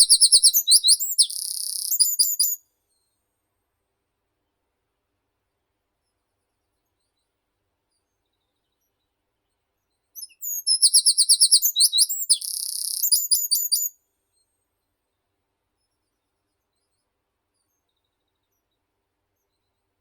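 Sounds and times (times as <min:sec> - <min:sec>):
songbird singing: 0:00.0 - 0:02.6, 0:10.2 - 0:13.9.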